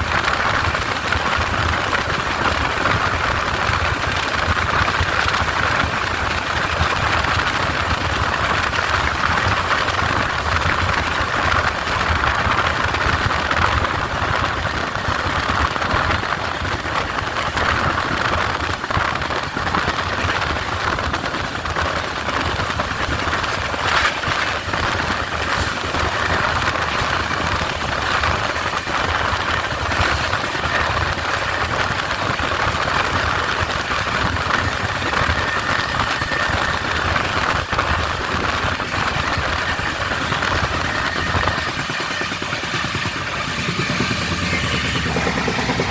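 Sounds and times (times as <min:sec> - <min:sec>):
train running at speed: 0:00.0 - 0:45.9.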